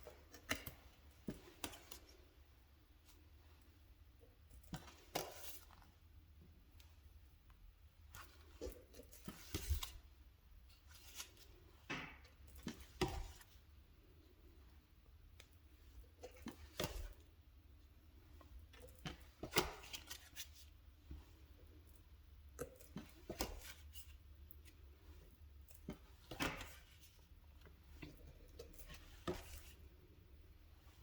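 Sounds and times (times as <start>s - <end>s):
cards sliding and tapping: 28.0s - 29.9s.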